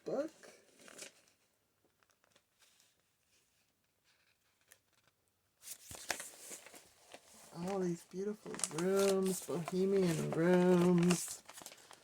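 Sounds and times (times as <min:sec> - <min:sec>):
paper pages rustling: 0:00.6 - 0:12.0.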